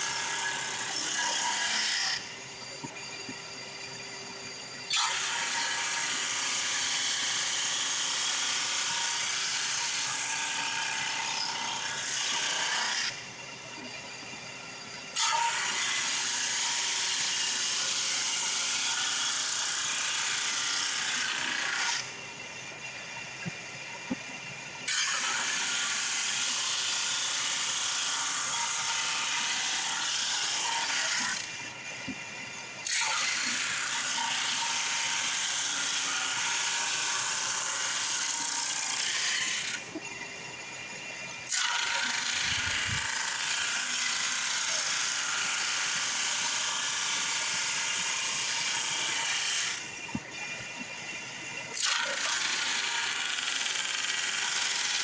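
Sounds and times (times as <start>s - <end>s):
shop vac running: 0.0s - 13.9s.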